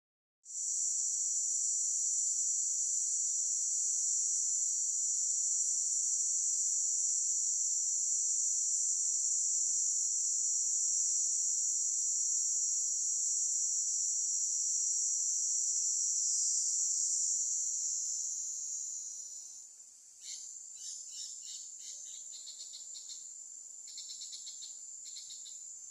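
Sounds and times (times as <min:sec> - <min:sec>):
high-pitched insect buzzing: 0:23.9 - 0:25.6.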